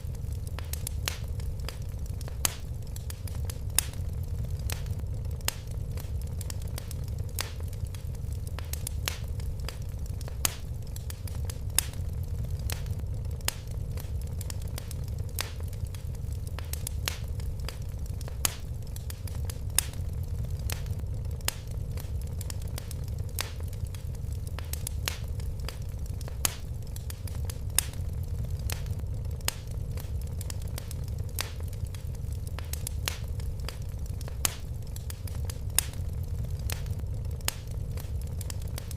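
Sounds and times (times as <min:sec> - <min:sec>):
low rumble of flames: 0:00.0 - 0:38.9
wood fire crackling and popping: 0:00.0 - 0:38.9.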